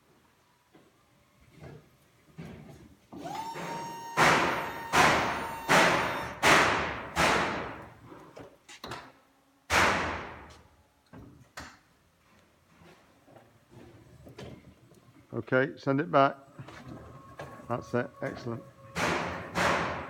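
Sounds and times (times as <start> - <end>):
loud ringing bangs: 3.9 - 7.8.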